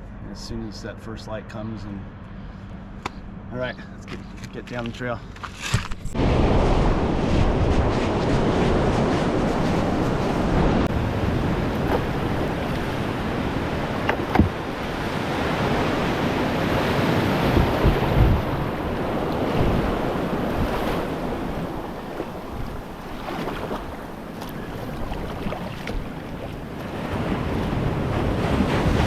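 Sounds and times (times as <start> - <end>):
wind buffeting microphone: 6.0 - 29.0
ocean surf washing ashore: 6.2 - 29.0
sharp knocks: 14.0 - 14.6.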